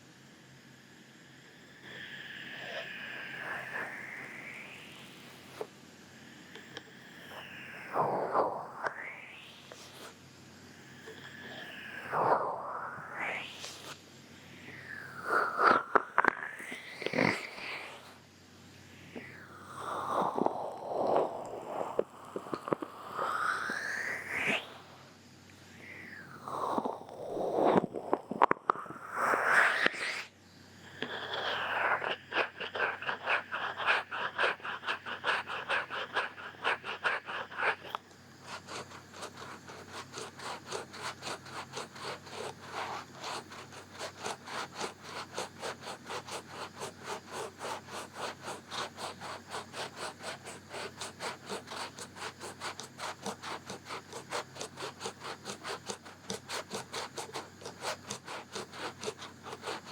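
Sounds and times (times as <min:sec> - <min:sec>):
scratching on microphone: 0:15.2 - 0:18.0, 0:26.3 - 0:30.3, 0:31.0 - 0:59.9.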